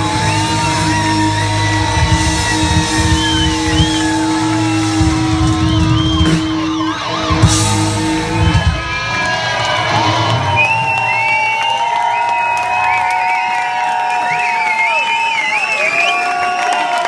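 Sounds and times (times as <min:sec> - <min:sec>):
lead line of bending held notes: 0:00.0 - 0:10.6
live rock band playing: 0:00.0 - 0:11.4.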